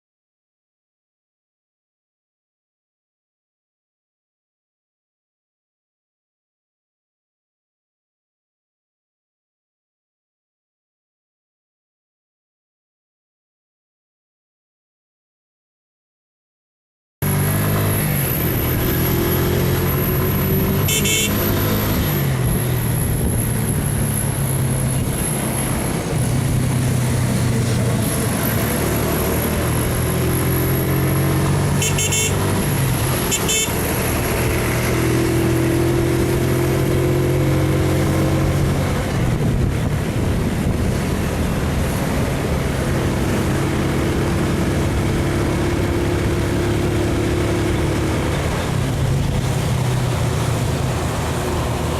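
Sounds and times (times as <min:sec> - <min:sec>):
motorcycle engine running: 0:17.2 - 0:21.8, 0:31.6 - 0:34.4
short horn beeps: 0:20.8 - 0:21.6, 0:31.8 - 0:32.6, 0:33.2 - 0:33.8.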